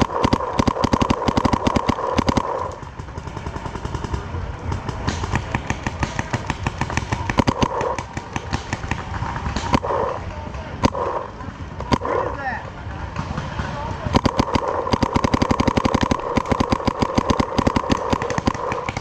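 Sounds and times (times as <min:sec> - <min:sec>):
paintball markers firing: 0:00.0 - 0:12.3, 0:13.2 - 0:19.0
steady whine: 0:13.8 - 0:19.0.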